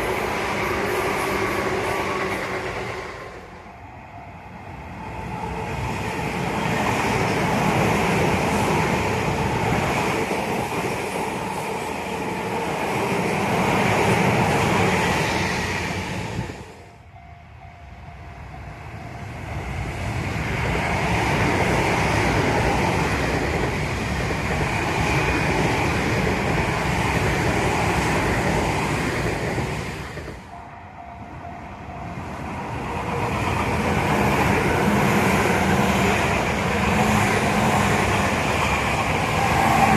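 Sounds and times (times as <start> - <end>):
electric trains passing: 0.0 - 39.9
wheels clickety-clack on rails: 4.8 - 16.7, 19.1 - 30.6, 31.6 - 39.9.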